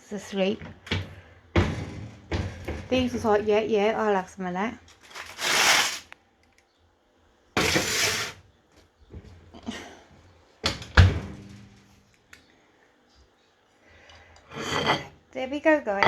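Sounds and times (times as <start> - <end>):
scraping rustle: 5.0 - 6.1, 7.6 - 8.4.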